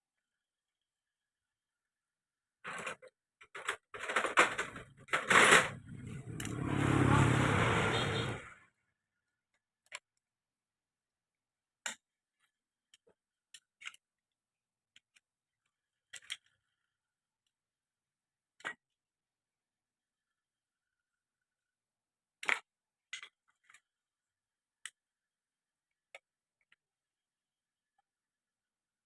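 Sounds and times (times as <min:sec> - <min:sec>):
scraping rattling noise: 0:03.9 - 0:08.5.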